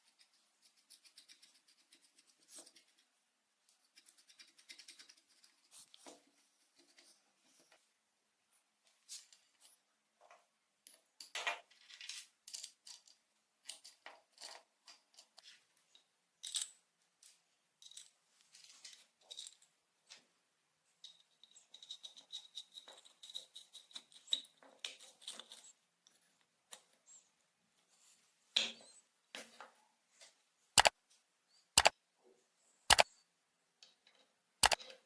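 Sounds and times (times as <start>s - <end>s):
small metal parts clinking: 11.2s - 15.3s, 17.8s - 19.7s, 21.0s - 25.8s.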